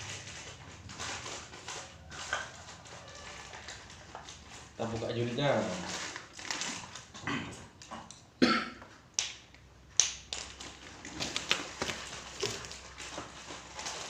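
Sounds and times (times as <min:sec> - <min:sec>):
packaging being opened: 0:00.0 - 0:07.1, 0:10.0 - 0:14.0.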